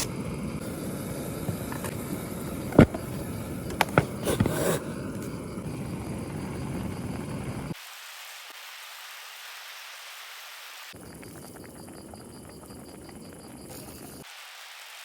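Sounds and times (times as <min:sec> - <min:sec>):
gas burner rushing: 0:00.0 - 0:07.8.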